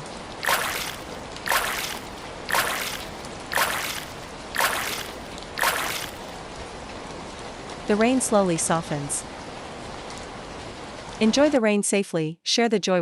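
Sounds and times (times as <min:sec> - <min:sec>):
water splashes: 0:00.0 - 0:06.5
steady rain: 0:00.0 - 0:11.6.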